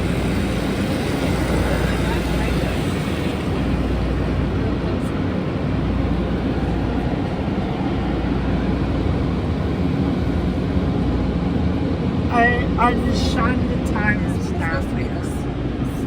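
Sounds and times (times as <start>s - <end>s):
car wash equipment roaring: 0.0s - 10.8s.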